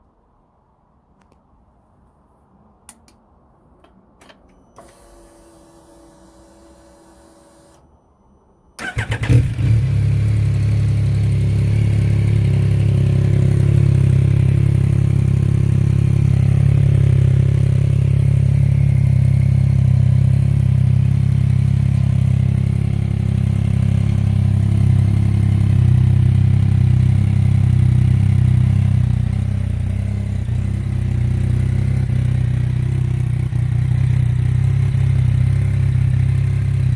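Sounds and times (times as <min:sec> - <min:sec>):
motorcycle engine starting and idling: 0:08.8 - 0:36.9.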